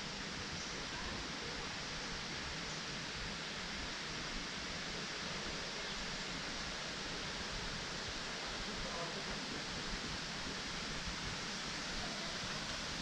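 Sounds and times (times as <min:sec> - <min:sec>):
waterfall rushing: 0:03.0 - 0:13.0.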